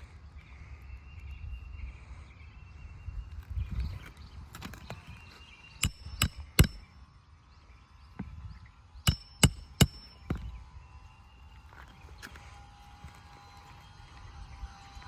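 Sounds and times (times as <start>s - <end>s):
hammer blows on metal: 5.8s - 6.8s, 9.1s - 10.5s.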